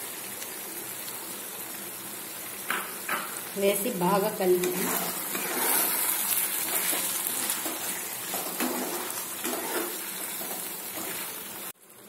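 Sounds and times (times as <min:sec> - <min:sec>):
meat sizzling in oil: 0:00.0 - 0:12.0
spatula stirring in pan: 0:04.5 - 0:11.7.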